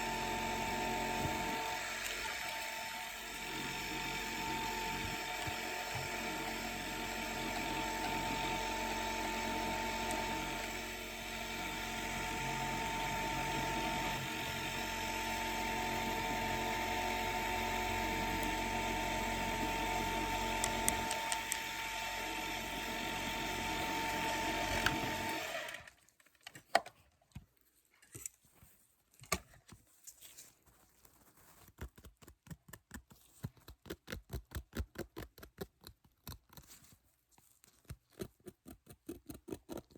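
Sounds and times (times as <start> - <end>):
dental drill whining: 0.0 - 25.9.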